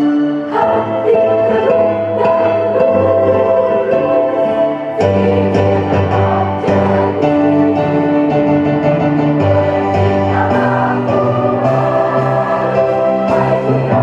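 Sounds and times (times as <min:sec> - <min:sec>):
choir singing in harmony: 0:00.0 - 0:14.0.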